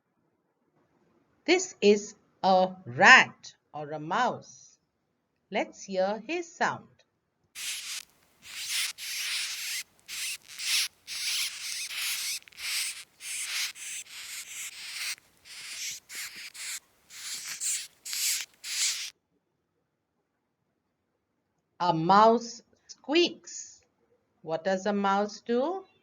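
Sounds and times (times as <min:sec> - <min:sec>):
mouse squeaking: 0:07.6 - 0:19.1.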